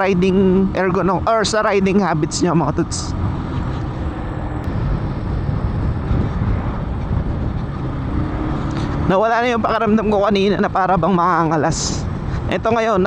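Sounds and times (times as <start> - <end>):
wind rushing over microphone: 0.0 - 13.0
motorcycle engine running: 2.9 - 10.2.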